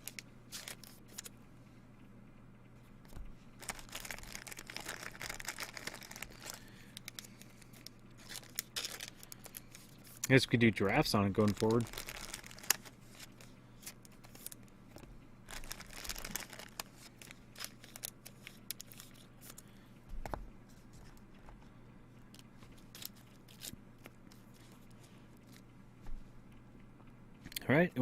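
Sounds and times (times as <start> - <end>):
cards and packaging rustling: 0.0 - 1.3, 3.2 - 20.4, 22.4 - 25.6.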